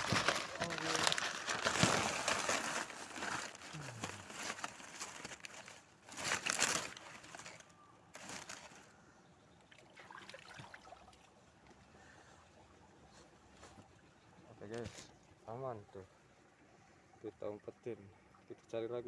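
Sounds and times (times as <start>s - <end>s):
rustling handling noise: 0.0s - 9.0s, 14.6s - 15.2s.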